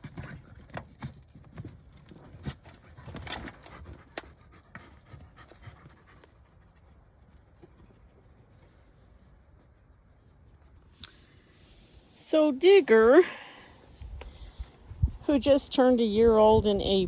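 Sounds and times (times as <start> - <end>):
paws scraping dry dirt: 0.0 - 11.4
dog panting: 2.7 - 7.0.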